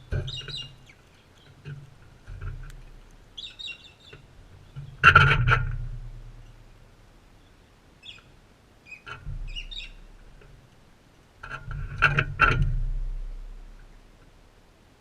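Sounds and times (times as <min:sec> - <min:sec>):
high bird chirps: 0:00.0 - 0:01.0, 0:03.4 - 0:04.2, 0:08.9 - 0:10.0.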